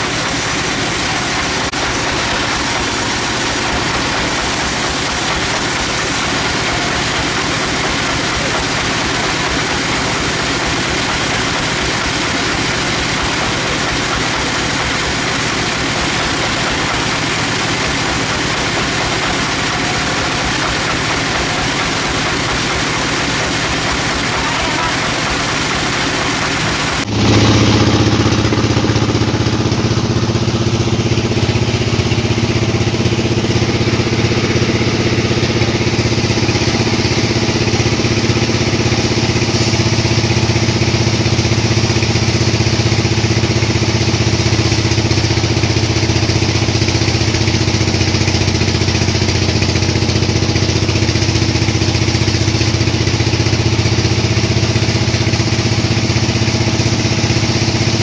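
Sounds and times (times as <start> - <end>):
sawmill machinery humming: 0.0 - 58.0.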